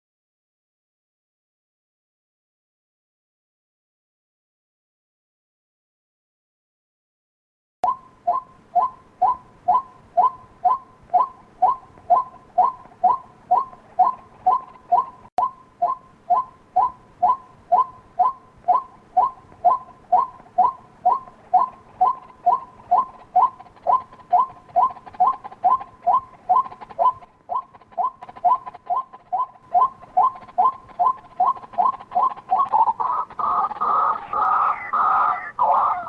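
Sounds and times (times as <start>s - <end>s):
waterhen calling: 8.2s - 36.0s.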